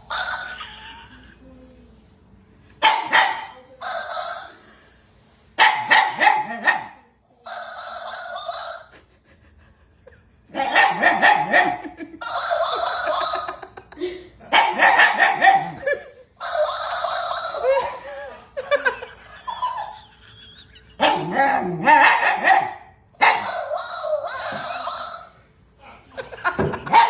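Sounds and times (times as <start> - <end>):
dog barking: 2.8 - 4.6, 5.6 - 8.9, 10.6 - 13.6, 14.5 - 17.7, 21.0 - 25.3, 26.8 - 27.0.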